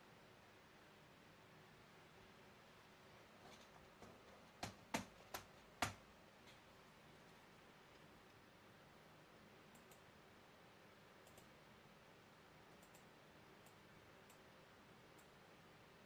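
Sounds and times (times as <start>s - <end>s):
faint room hiss: 0.0s - 16.0s
small sharp clicks: 9.7s - 10.1s, 11.2s - 11.5s, 12.8s - 14.5s.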